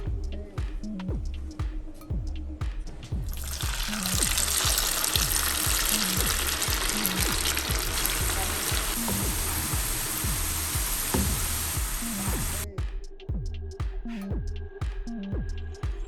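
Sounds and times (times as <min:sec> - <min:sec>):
background music with a beat: 0:00.0 - 0:16.0
food sizzling in hot oil: 0:03.3 - 0:12.6.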